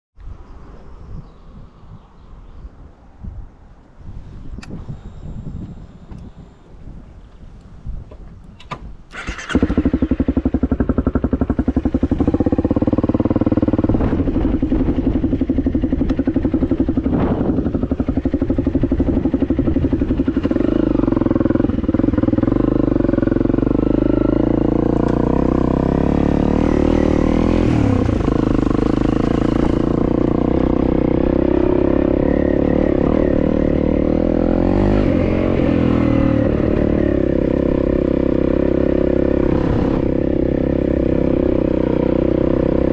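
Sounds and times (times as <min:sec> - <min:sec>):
dirt bike engine running: 0:09.2 - 0:42.9.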